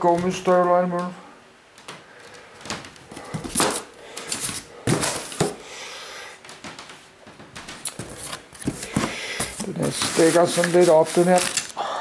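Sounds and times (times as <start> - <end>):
rustling: 6.4 - 11.8
objects knocking in cardboard box: 7.5 - 10.3.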